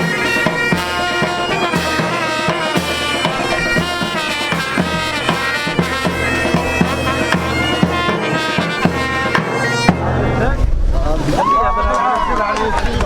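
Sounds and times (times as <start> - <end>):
bagpipes playing melody: 0.0 - 10.1
drums beating: 0.0 - 11.2.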